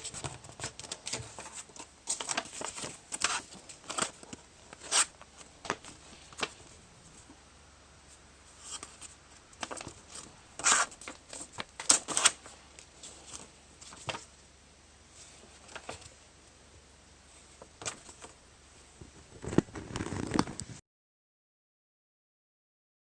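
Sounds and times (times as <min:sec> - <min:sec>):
paper crinkling and rustling: 0:00.0 - 0:07.4, 0:08.6 - 0:14.3, 0:15.2 - 0:16.2, 0:17.4 - 0:18.4, 0:19.0 - 0:20.8.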